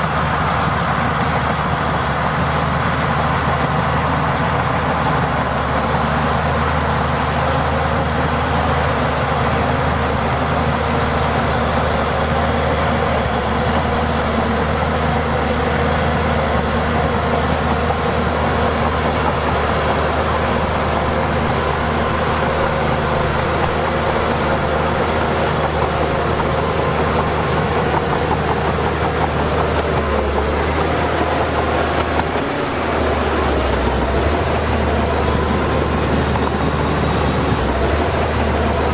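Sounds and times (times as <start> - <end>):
heavy diesel machinery engine drone: 0.0 - 38.9.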